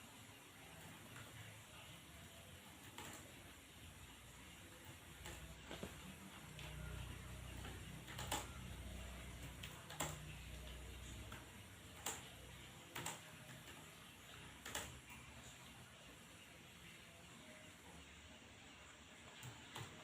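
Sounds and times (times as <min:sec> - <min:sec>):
faint low hum: 0:00.0 - 0:20.0
keyboard keystroke clicks: 0:07.6 - 0:08.7, 0:09.5 - 0:10.3, 0:14.6 - 0:15.0.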